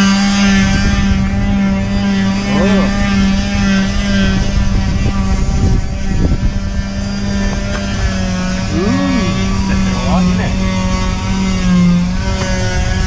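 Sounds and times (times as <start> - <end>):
machine humming: 8.5 - 10.8.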